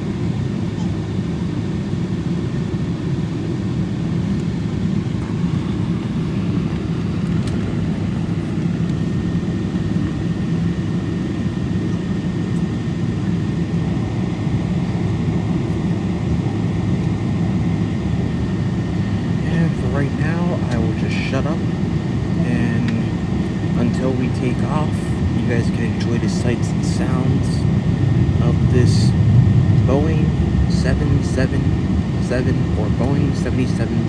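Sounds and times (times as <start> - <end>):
air-conditioning noise: 0.0 - 34.0
jet engine drone: 0.0 - 34.0
faint high whine: 11.8 - 34.0.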